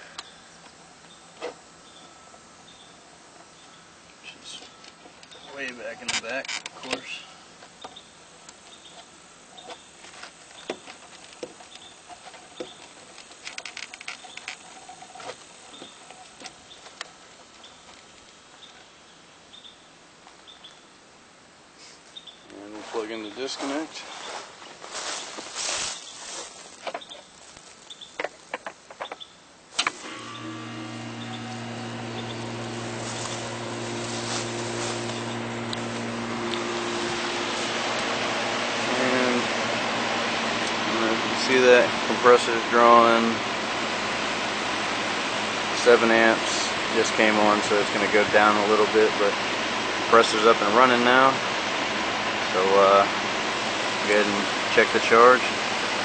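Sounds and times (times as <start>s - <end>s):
compressor and fan humming: 29.8s - 56.0s.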